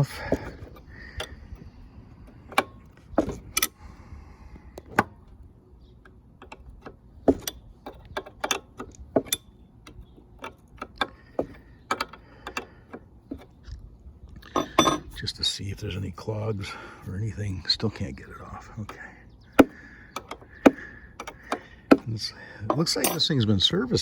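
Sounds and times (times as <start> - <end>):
wrench metallic clicks and knocks: 6.0 - 13.5, 14.5 - 15.1, 18.8 - 23.7.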